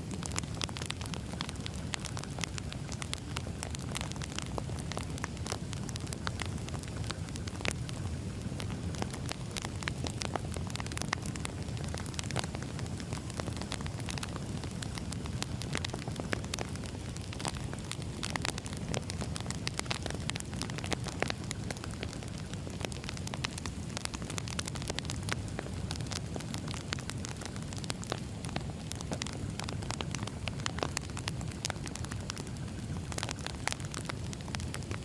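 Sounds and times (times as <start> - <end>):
fire crackles and pops: 0.0 - 35.0
low rumble of flame: 0.0 - 35.0.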